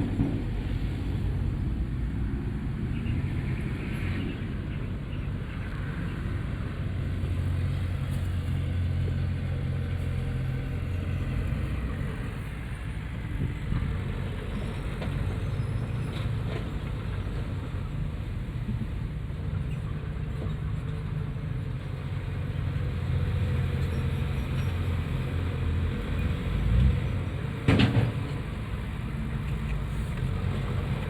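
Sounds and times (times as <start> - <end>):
heavy diesel engine rumbling: 0.0 - 31.0.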